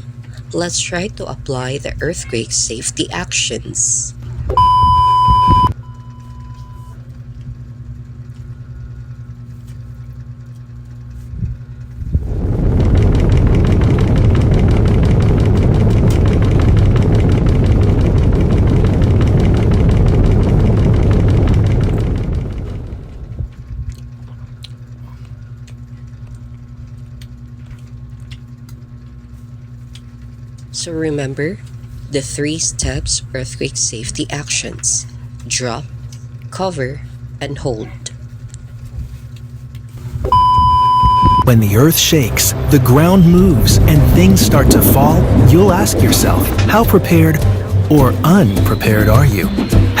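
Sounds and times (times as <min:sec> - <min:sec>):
low pulsing rumble: 0:00.0 - 0:50.0
steady low hum: 0:00.0 - 0:50.0
faint high beep tone: 0:04.5 - 0:07.0, 0:40.3 - 0:41.5.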